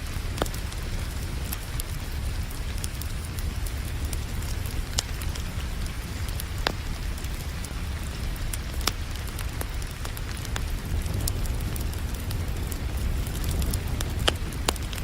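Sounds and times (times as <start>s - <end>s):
rain falling: 0.0s - 15.0s
wood fire crackling: 0.0s - 15.0s.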